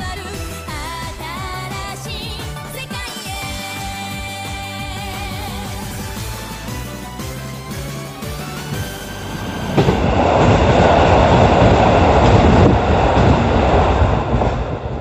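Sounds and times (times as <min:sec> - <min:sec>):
electric train passing: 0:03.3 - 0:15.0.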